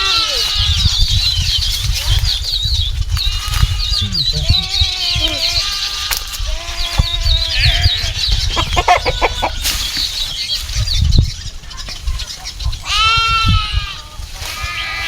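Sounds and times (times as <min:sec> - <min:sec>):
goat bleating: 0:00.0 - 0:01.0, 0:03.3 - 0:09.6, 0:12.8 - 0:15.0
chickens clucking: 0:00.0 - 0:15.0
low rumble: 0:02.1 - 0:05.6.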